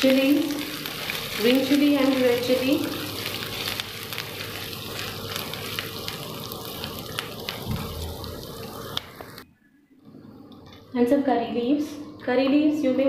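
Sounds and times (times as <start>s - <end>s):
food sizzling in oil: 0.0s - 9.4s.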